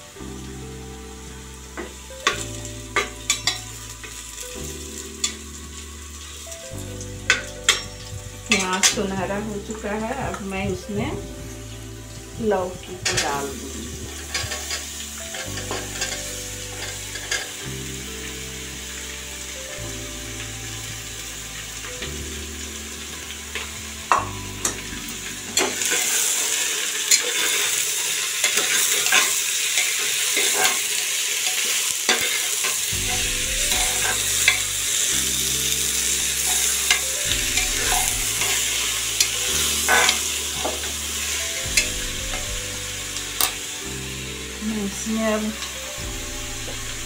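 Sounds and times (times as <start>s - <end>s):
vegetables sizzling in oil: 0.0s - 47.0s
spatula scraping a pot: 31.6s - 40.8s.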